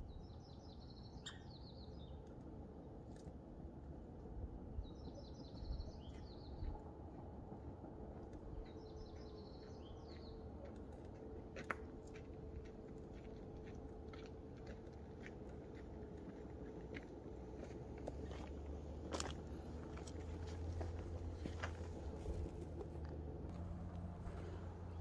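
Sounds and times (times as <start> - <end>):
low outdoor background noise: 0.0 - 25.0
bird calling: 1.2 - 2.0.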